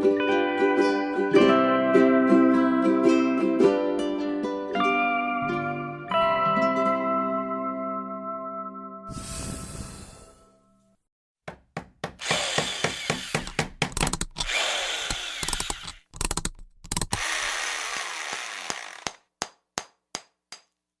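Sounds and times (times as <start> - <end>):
rapid knocks and clicks: 11.8 - 14.5
electric drill whirring: 12.2 - 13.8, 14.4 - 16.1, 17.1 - 19.2.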